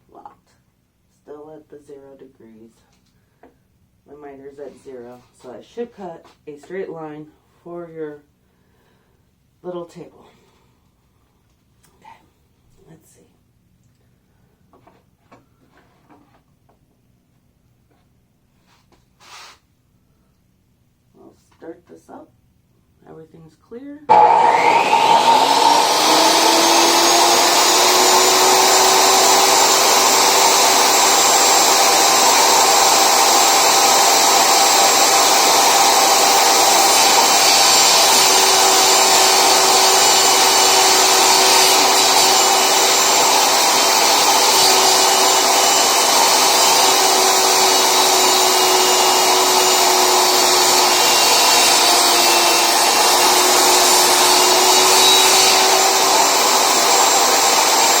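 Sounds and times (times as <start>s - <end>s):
table saw motor whine: 24.1s - 58.0s.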